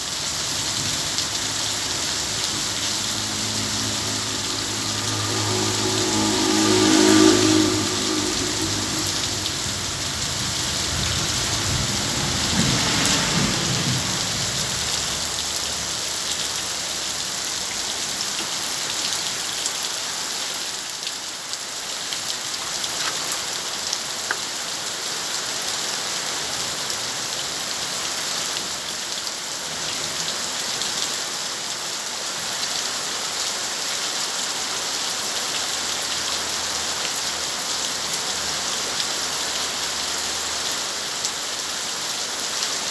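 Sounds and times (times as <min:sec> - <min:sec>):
heavy rain falling: 0:00.0 - 0:42.9
low rumble of thunder: 0:00.4 - 0:16.4.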